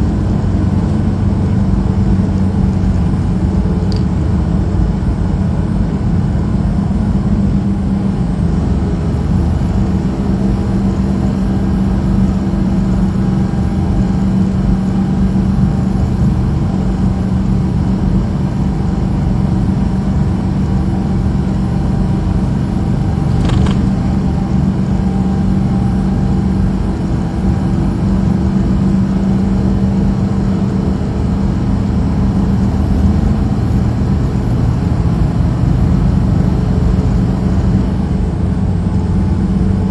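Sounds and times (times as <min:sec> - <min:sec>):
truck engine droning: 0:00.0 - 0:39.9
road noise: 0:22.3 - 0:25.0.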